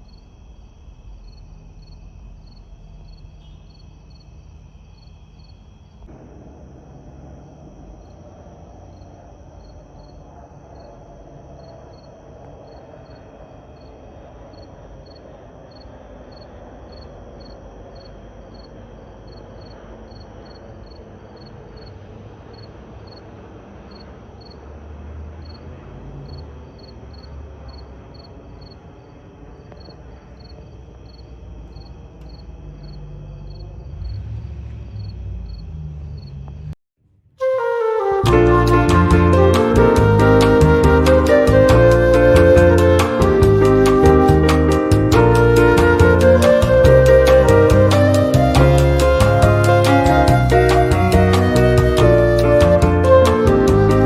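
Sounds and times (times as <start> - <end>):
crickets chirping: 0.0 - 36.8
jet aircraft passing: 6.1 - 31.7.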